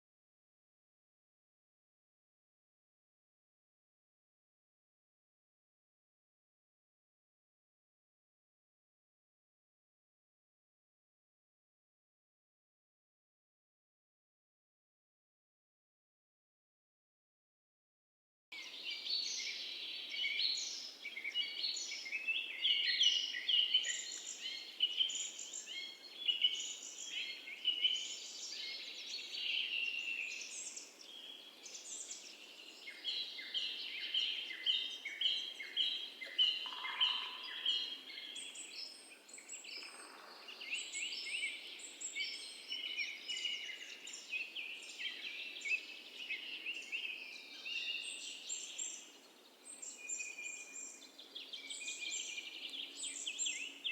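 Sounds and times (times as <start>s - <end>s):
small birds chirping: 18.6s - 53.9s.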